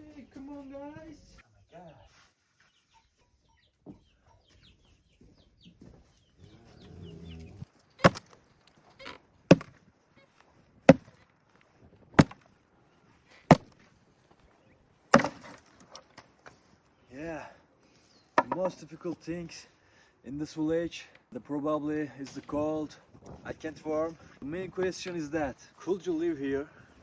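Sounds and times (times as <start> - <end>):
chickens clucking and chirping: 1.5 - 7.6
hard chopping strikes: 8.0 - 8.4, 9.5 - 9.8, 10.9 - 11.2, 12.2 - 12.4, 13.5 - 13.8, 15.1 - 15.6.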